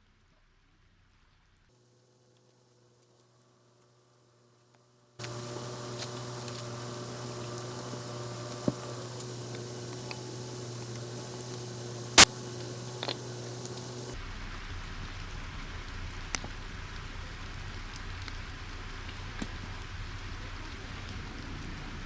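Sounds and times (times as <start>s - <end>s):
heavy rain hissing: 5.2s - 22.0s.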